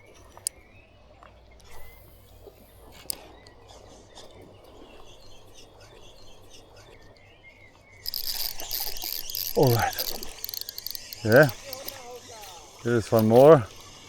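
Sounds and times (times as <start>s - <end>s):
click: 0.0s - 3.6s, 8.0s - 14.0s
faint high chirps: 0.0s - 14.0s
loud high insect chirring: 8.0s - 14.0s.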